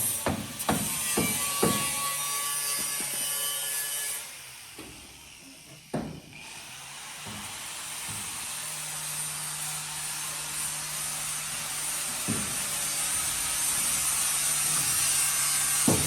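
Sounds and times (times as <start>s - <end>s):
knocks: 5.9s - 6.3s, 12.2s - 12.6s.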